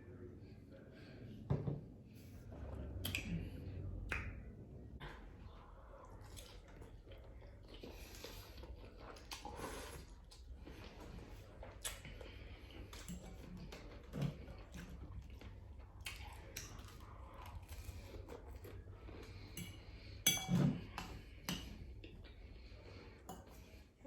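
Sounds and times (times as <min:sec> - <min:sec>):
person chewing: 0:06.0 - 0:20.1
cutlery scraping on a plate: 0:19.5 - 0:21.7.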